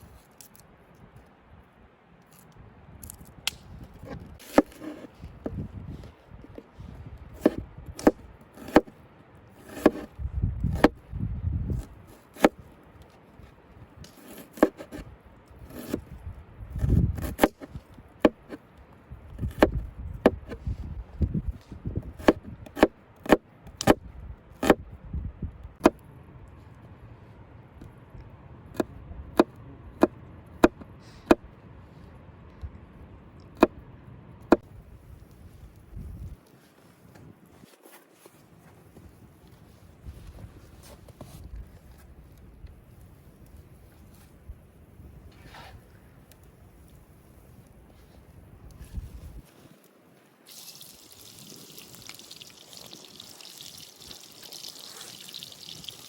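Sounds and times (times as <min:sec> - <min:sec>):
blade chopping wood: 0:03.5 - 0:05.6, 0:07.4 - 0:08.9, 0:09.6 - 0:11.0, 0:11.8 - 0:12.6, 0:16.8 - 0:18.6, 0:19.4 - 0:20.6, 0:22.0 - 0:24.8.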